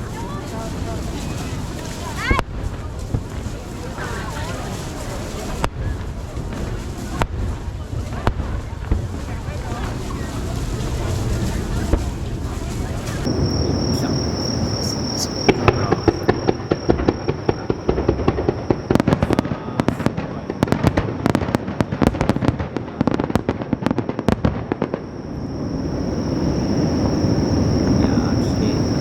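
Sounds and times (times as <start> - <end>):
fireworks cracking: 0.0 - 29.0
high-pitched whine: 13.3 - 18.1, 25.1 - 29.0
low rumble: 13.3 - 18.9, 24.8 - 29.0.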